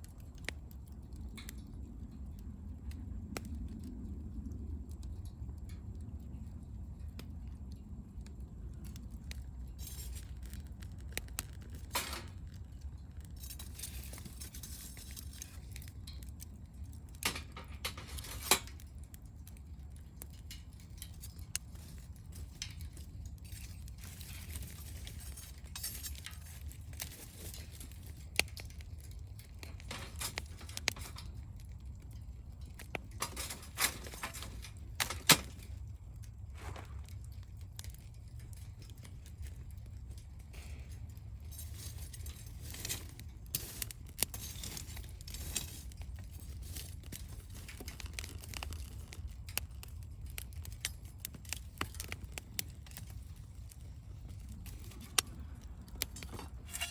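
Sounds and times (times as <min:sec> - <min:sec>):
wood fire crackling: 0:00.0 - 0:56.9.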